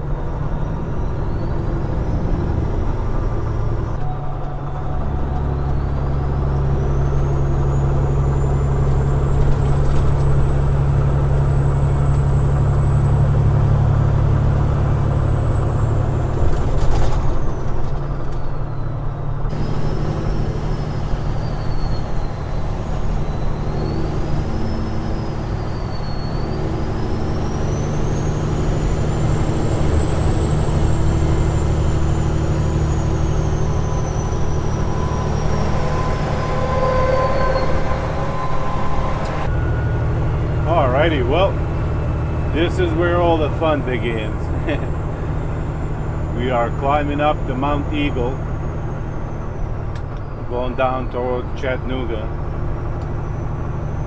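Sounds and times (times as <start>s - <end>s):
truck diesel engine droning: 0.0s - 54.0s
faint high whine: 19.5s - 39.8s.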